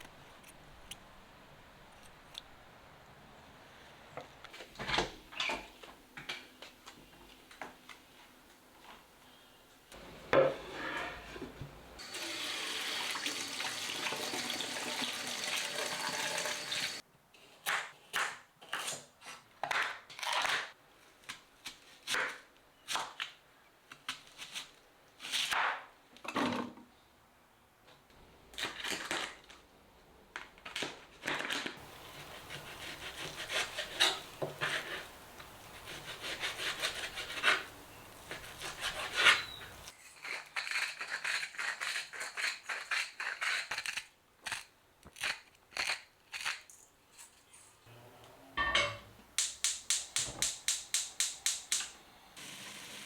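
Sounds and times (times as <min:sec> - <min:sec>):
water running from a tap: 0:12.0 - 0:17.0
household handling noises: 0:30.4 - 0:40.4.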